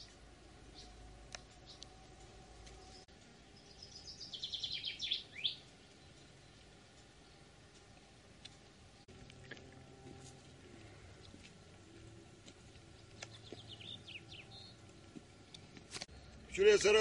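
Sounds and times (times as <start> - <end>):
songbird singing fast trill: 2.8 - 6.6, 13.2 - 14.8
faint bird chirps: 2.8 - 7.5.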